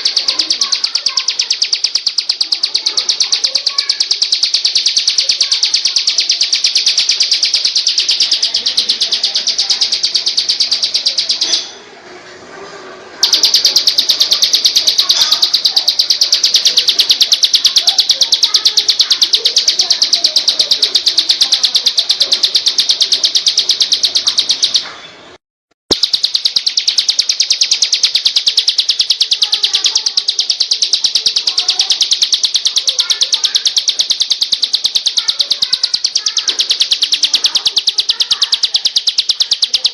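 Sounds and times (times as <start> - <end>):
songbird high-pitched chirps: 0.0 - 11.8, 13.2 - 24.9, 25.9 - 39.9.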